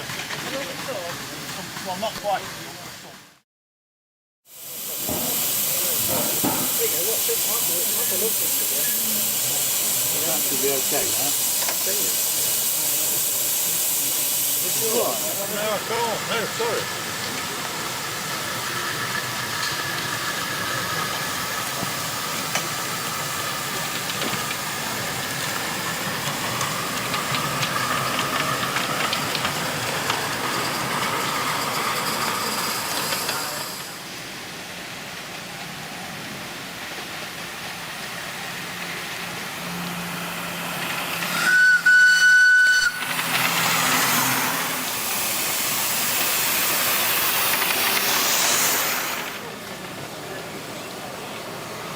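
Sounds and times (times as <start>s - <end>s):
steam locomotive hissing: 0.0s - 3.4s, 4.5s - 51.9s
steam whistle blast: 41.2s - 45.0s.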